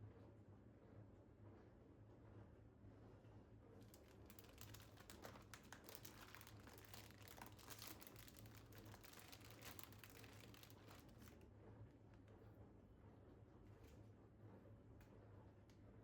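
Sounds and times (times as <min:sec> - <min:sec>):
packaging crinkling and rustling: 0:03.8 - 0:11.4.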